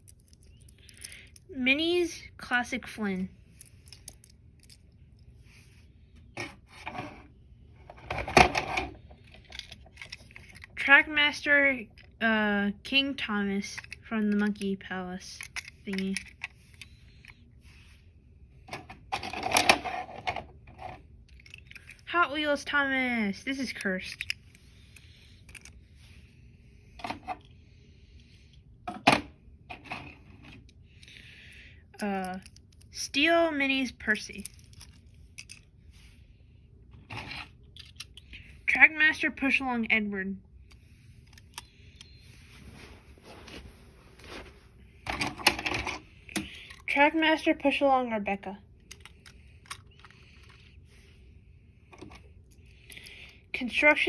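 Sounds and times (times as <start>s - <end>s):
toy clattering: 0.0s - 1.5s, 3.4s - 5.3s, 8.1s - 10.9s, 13.5s - 17.5s, 18.7s - 22.7s, 23.4s - 26.1s, 32.2s - 33.0s, 34.0s - 35.8s, 37.1s - 38.4s, 45.0s - 47.0s, 48.8s - 50.8s
toy trains rubbing and scraping: 13.2s - 18.1s, 18.7s - 27.5s, 48.9s - 51.2s
toy trains clicking and clacking: 13.6s - 17.4s, 23.5s - 25.8s, 48.9s - 50.7s.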